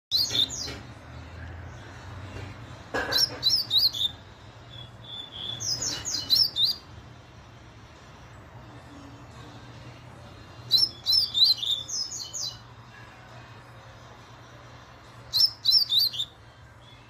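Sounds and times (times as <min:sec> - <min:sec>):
bird chirping rapidly: 0:00.1 - 0:00.8, 0:03.1 - 0:06.9, 0:10.7 - 0:12.6, 0:15.2 - 0:16.4.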